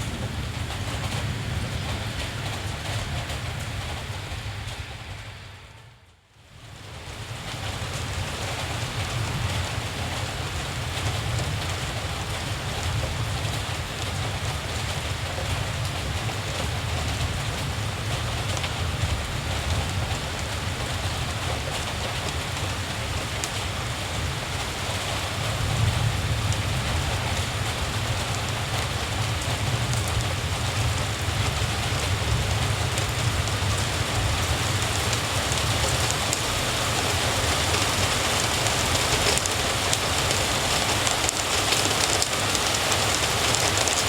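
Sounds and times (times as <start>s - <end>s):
steady rain falling: 0.0s - 44.0s
raindrops ticking: 26.3s - 44.0s.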